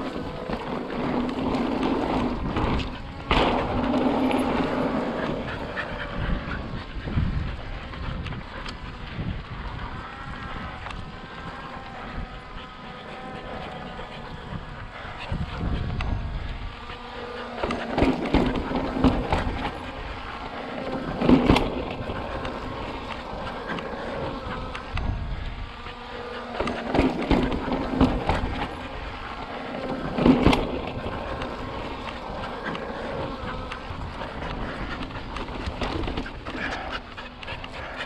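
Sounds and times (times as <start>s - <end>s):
bike knocks and rattles: 0.0s - 5.8s, 17.6s - 20.2s, 20.8s - 23.8s, 26.6s - 28.9s
bike tyre hum: 0.0s - 38.0s.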